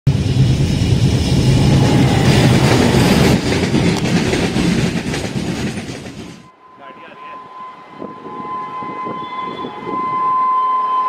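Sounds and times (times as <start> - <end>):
low drone: 0.1 - 4.0
train wheels rumbling on track: 0.1 - 11.0.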